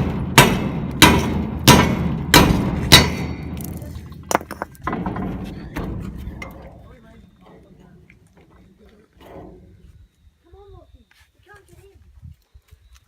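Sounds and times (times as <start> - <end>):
metal door being struck: 0.0 - 3.6, 4.8 - 6.5.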